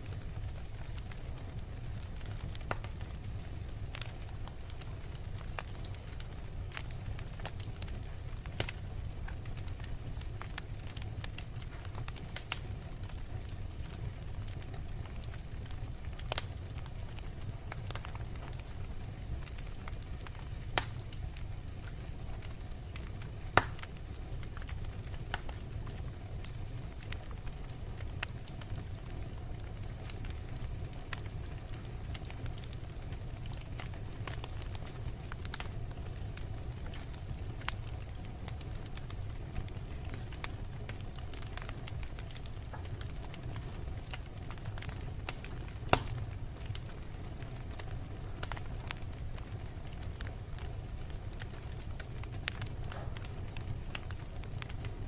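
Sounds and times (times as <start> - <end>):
fire rumbling in fireplace: 0.0 - 55.0
wood crackling and popping: 0.0 - 55.0.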